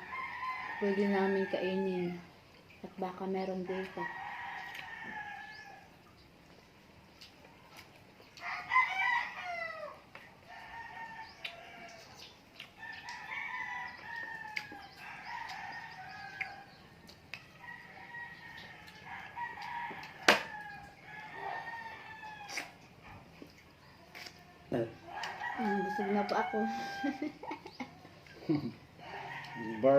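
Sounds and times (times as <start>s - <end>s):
rooster crowing: 0.0s - 2.2s, 4.0s - 5.9s, 8.4s - 12.1s, 12.8s - 23.2s, 24.7s - 27.8s, 28.5s - 29.9s.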